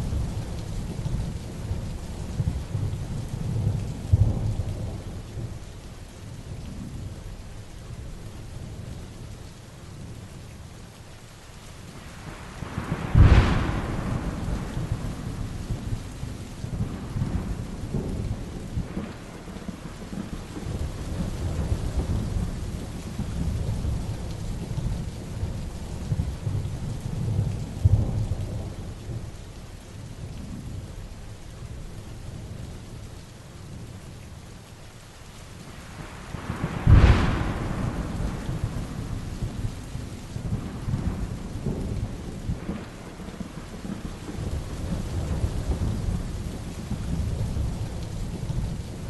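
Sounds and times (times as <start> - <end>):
heavy rain falling: 0.0 - 49.0
thunder rumbling: 12.2 - 29.4, 35.8 - 49.0.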